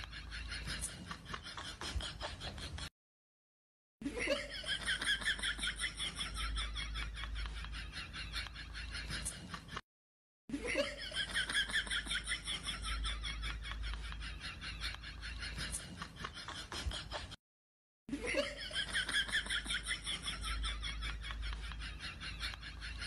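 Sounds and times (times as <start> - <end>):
rapid pulsing giggling: 0.0 - 2.9, 10.8 - 17.4, 18.3 - 23.0.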